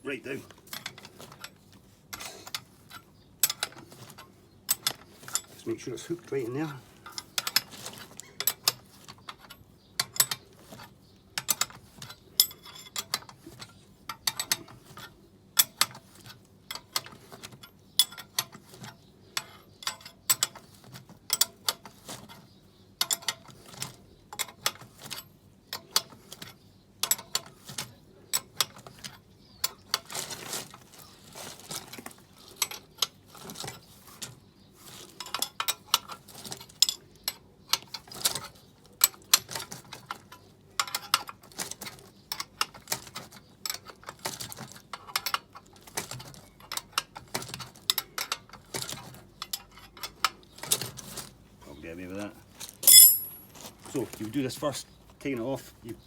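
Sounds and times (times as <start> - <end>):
metal tools clinking: 52.7 - 53.5.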